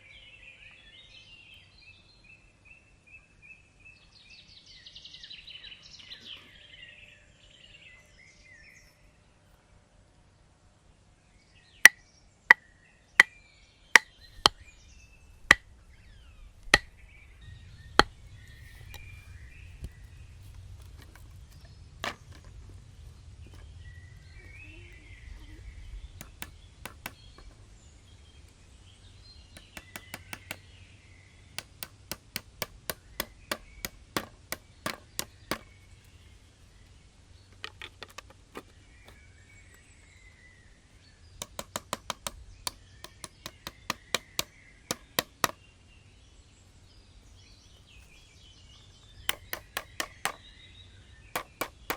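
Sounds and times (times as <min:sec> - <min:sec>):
faint bird chirps: 0:00.0 - 0:09.8, 0:23.0 - 0:31.6
wood being chopped: 0:14.0 - 0:17.2, 0:18.0 - 0:19.1, 0:22.0 - 0:22.5, 0:26.2 - 0:27.6, 0:29.6 - 0:30.7, 0:31.5 - 0:35.9, 0:41.4 - 0:45.6, 0:49.1 - 0:50.5, 0:51.4 - 0:51.9.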